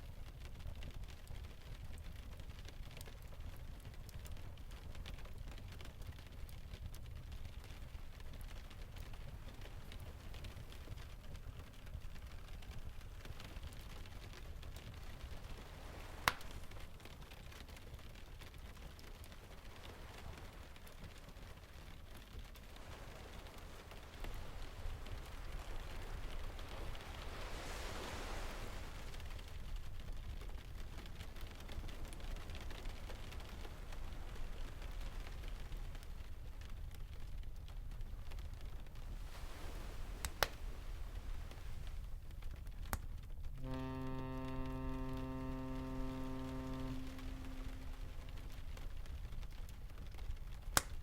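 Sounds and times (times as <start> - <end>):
constant low rumble: 0.0 - 51.0
log fire popping: 0.1 - 26.6, 29.4 - 51.0
faint ticks: 0.2 - 51.0
rain hissing: 22.8 - 30.0, 39.0 - 42.5, 43.5 - 49.5
distant surf and sea breeze: 22.9 - 35.3, 38.9 - 42.2, 43.6 - 48.6.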